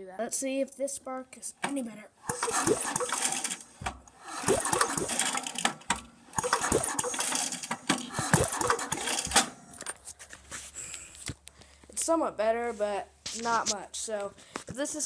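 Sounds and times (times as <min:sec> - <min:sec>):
recoil pull-starter cranking engine: 0:02.2 - 0:09.9.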